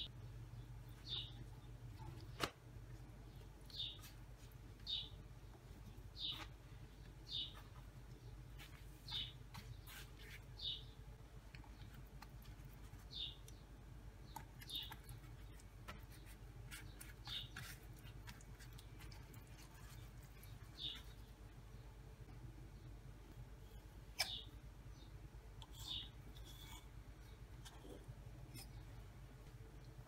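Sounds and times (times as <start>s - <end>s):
low steady hum: 0.0s - 30.0s
bird chirping: 0.5s - 2.2s, 4.8s - 5.2s, 6.1s - 8.4s, 9.0s - 11.0s, 12.9s - 17.8s, 19.9s - 21.9s, 24.2s - 26.2s
pastry sheets rustling: 5.6s - 10.9s, 14.8s - 21.5s.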